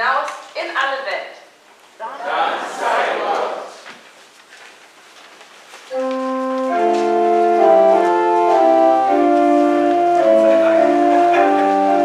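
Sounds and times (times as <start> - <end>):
organ playing sustained chords: 5.9 - 12.0.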